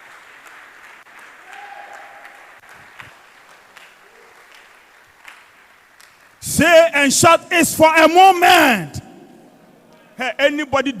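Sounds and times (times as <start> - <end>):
congregation applauding: 0.0 - 6.5.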